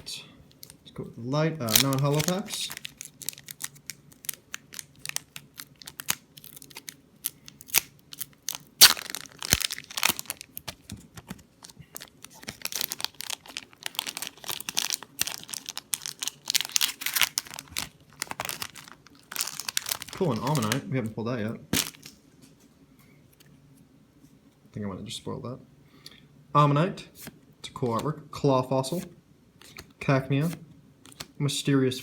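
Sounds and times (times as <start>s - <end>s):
foil wrapper tearing and crinkling: 1.6s - 11.0s, 11.6s - 20.8s, 21.8s - 22.2s.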